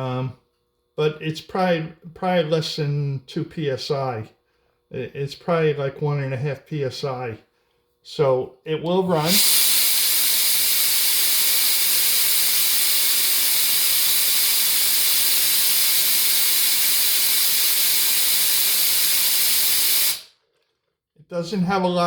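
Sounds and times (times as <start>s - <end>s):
air duster hissing: 9.0s - 20.4s.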